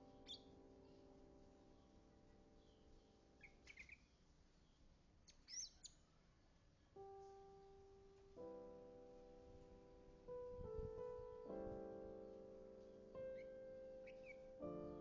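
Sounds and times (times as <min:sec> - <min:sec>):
soft slow piano notes: 0:00.0 - 0:04.9, 0:05.5 - 0:15.0
bird chirping: 0:00.0 - 0:06.3, 0:12.8 - 0:15.0.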